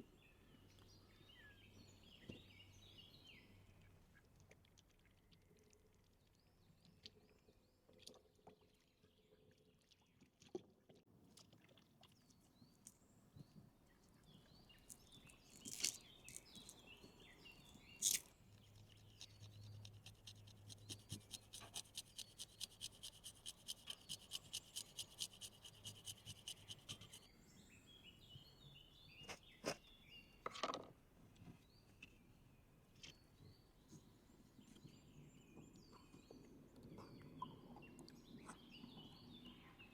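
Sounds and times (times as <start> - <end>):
faint birds chirping: 12.1 - 30.5
rhythmic scraping strokes: 19.0 - 27.2.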